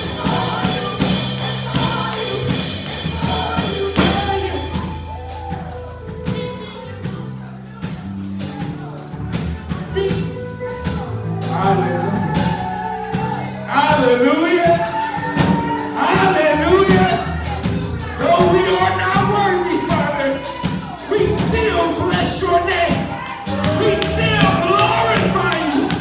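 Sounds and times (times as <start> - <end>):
live gospel band: 0.0 - 26.0
people singing: 0.0 - 26.0.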